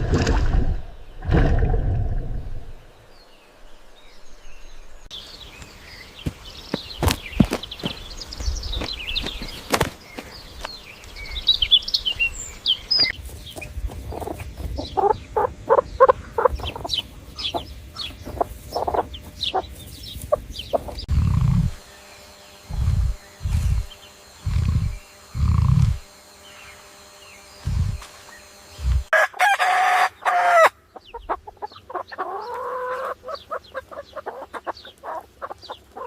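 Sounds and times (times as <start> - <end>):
high peeping chirps: 10.2 - 29.1
chickens clucking: 13.0 - 21.8, 22.7 - 26.0, 28.8 - 36.0
short low rumbles: 21.0 - 21.8, 22.7 - 26.1, 27.6 - 28.0.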